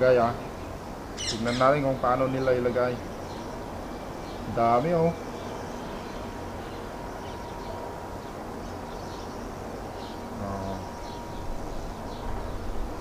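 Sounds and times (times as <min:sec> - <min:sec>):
low outdoor rumble: 0:00.0 - 0:13.0
faint bird chirps: 0:00.4 - 0:12.8
short low bird call: 0:10.4 - 0:11.2.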